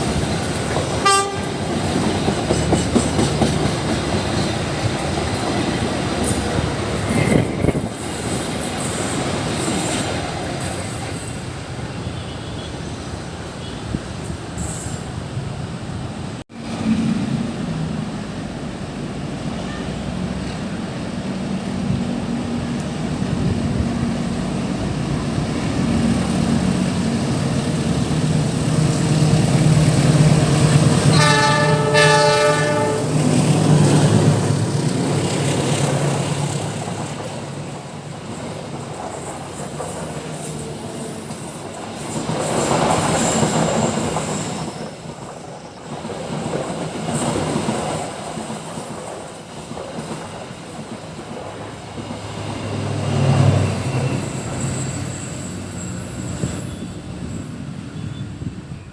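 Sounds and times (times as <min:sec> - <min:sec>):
train rumbling and rolling: 0:00.0 - 0:58.9
train horn blast: 0:01.0 - 0:01.6, 0:31.0 - 0:33.4.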